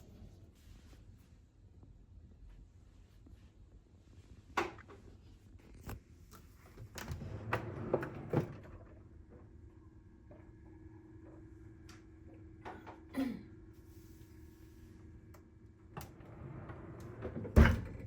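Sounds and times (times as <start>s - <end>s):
cabinet doors and drawers knocking: 17.4s - 18.0s.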